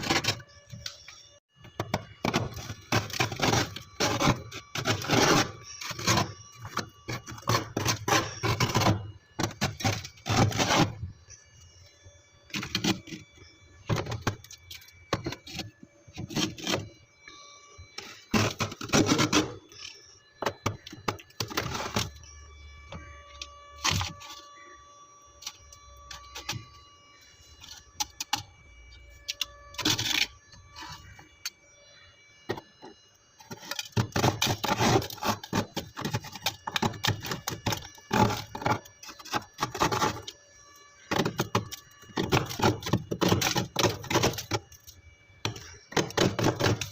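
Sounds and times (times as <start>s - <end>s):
crunchy scraping of frozen ice: 0.0s - 46.9s.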